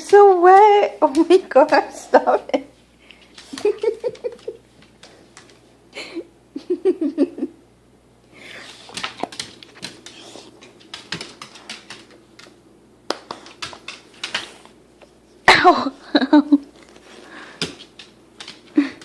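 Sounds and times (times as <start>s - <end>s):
woman laughing: 2.0s - 2.8s, 3.5s - 4.6s, 6.0s - 7.6s, 15.5s - 16.8s
claws clicking and scuffling on floor: 8.6s - 15.2s, 16.6s - 19.0s.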